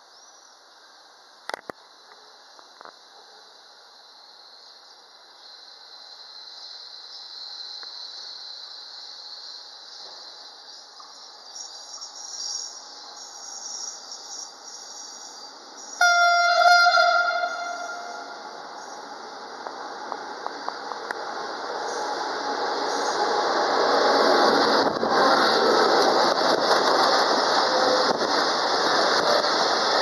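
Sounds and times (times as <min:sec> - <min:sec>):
train running noise: 0:09.9 - 0:30.0
wheels squealing on rails: 0:11.2 - 0:19.9, 0:21.2 - 0:30.0
locomotive horn blast: 0:16.0 - 0:18.5.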